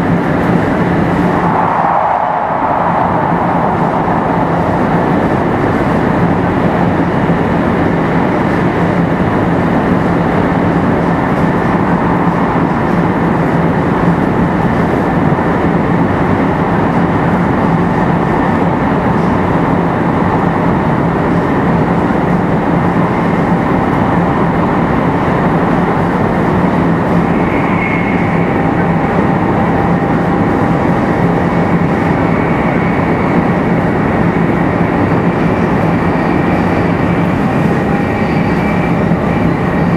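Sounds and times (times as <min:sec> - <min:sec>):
low hum: 0:00.0 - 0:07.6
train wheel and air noise: 0:00.0 - 0:39.9.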